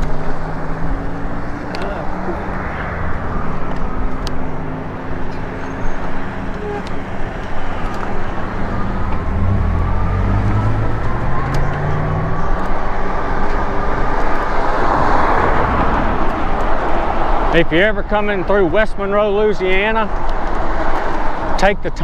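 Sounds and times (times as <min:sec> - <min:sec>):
steady rushing noise: 0:00.0 - 0:11.4
vehicle passing by: 0:00.0 - 0:18.0
vehicle engines running: 0:00.0 - 0:22.0.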